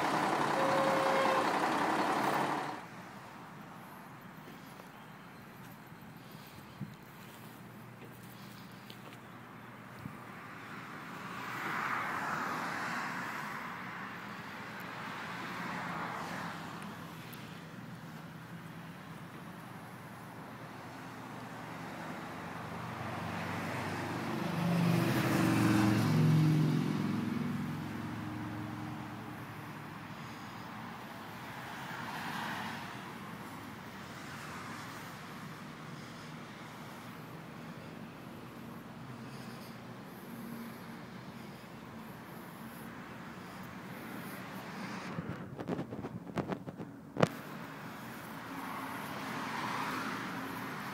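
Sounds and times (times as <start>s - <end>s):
motor grader diesel engine: 0.0s - 3.7s.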